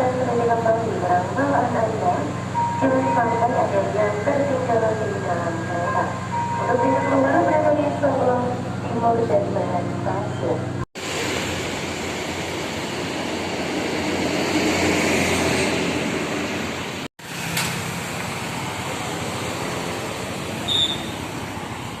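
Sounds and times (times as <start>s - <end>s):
train rumble and hiss: 11.0s - 22.0s.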